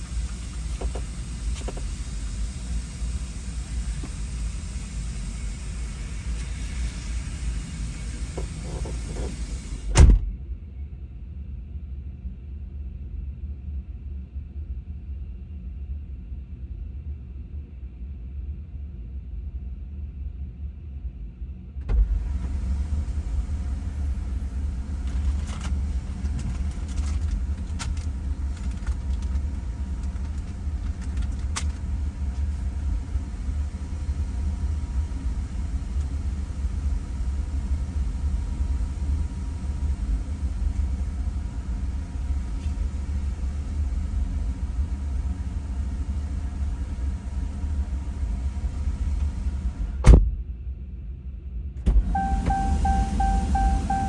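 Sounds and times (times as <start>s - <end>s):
car engine and road rumble: 0.0s - 10.6s, 21.8s - 50.5s, 51.8s - 54.0s.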